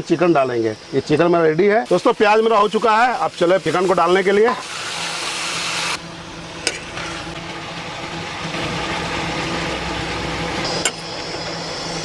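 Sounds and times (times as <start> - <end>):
chicken sizzling in oil: 1.8 - 12.0
engine idling: 6.0 - 12.0.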